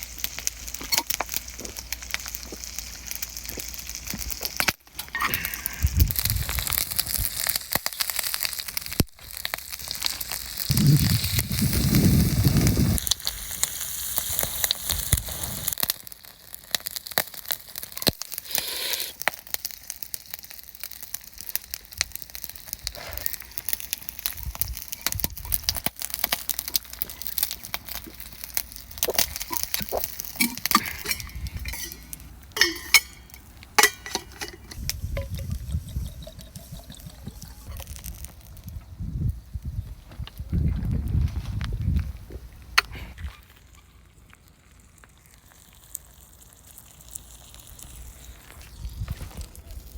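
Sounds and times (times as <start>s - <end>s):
oysters sizzling in a pan: 0.0s - 39.0s, 43.6s - 49.9s
metal or glass clinks: 30.4s - 34.8s.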